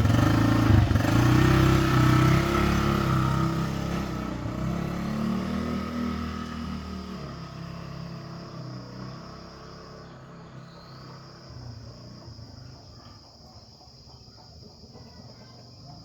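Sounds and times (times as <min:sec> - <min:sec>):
scooter engine running: 0:00.0 - 0:16.0.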